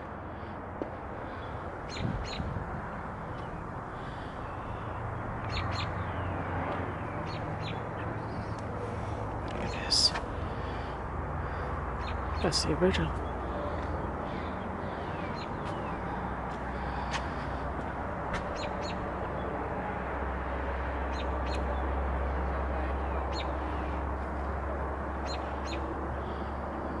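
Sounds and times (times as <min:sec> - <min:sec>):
highway traffic rumble: 0:00.0 - 0:27.0
small birds chirping: 0:01.2 - 0:02.6, 0:03.2 - 0:17.7, 0:18.4 - 0:19.5, 0:25.1 - 0:26.6.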